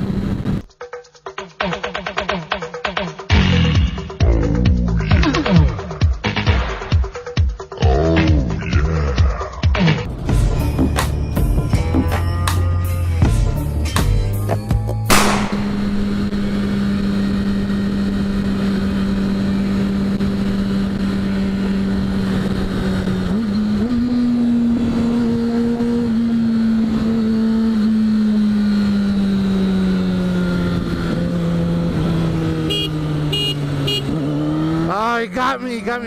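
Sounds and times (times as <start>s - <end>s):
motorcycle engine at high speed: 0.0s - 0.6s, 15.1s - 35.5s.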